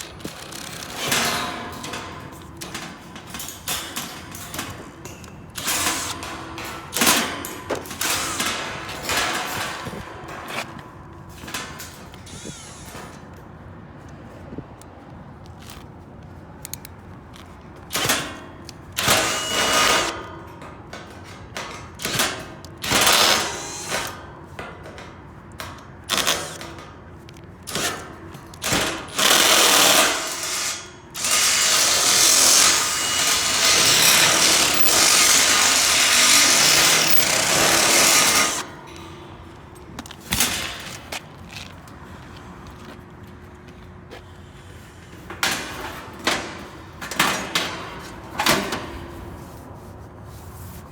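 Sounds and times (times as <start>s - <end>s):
power drill running: 12.2s - 13.0s, 29.2s - 38.6s.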